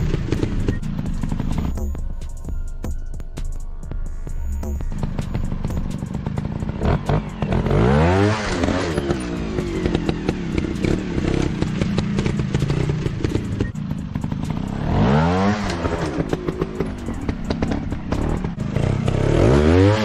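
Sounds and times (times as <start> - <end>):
dirt bike engine revving: 0.0 - 2.0, 4.6 - 20.0
sharp clicks and clatter: 5.0 - 19.6.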